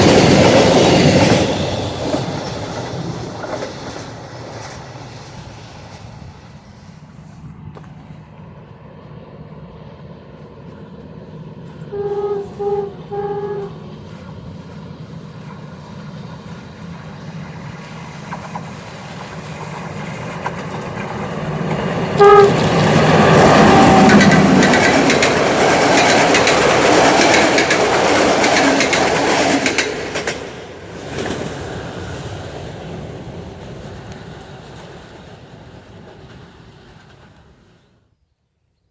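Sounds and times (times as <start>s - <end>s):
train wheels rumbling on rail: 0.0s - 38.0s
train horn blasts: 11.9s - 14.2s, 22.1s - 24.6s.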